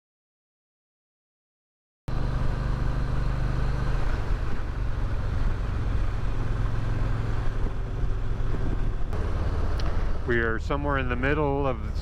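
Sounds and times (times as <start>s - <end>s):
motorcycle engine running: 2.1s - 12.0s
wind noise on microphone: 4.1s - 10.3s.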